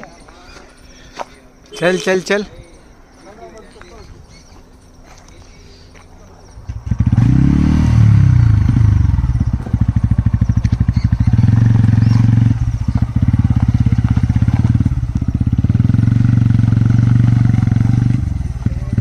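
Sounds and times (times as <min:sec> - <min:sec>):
motorcycle engine running: 0:06.5 - 0:19.0.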